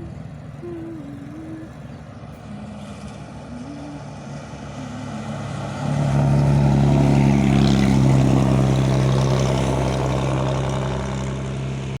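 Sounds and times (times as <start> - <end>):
heavy truck engine running: 0.0 - 12.0.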